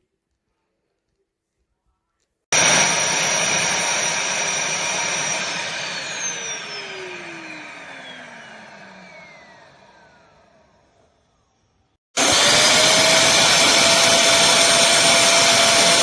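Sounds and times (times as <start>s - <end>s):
vacuum motor whining: 2.6s - 11.3s, 12.2s - 16.0s.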